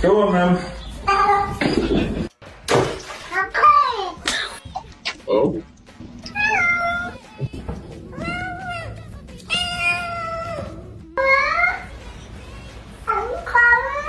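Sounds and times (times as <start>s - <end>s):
cat meowing: 6.2s - 7.3s, 8.1s - 11.8s.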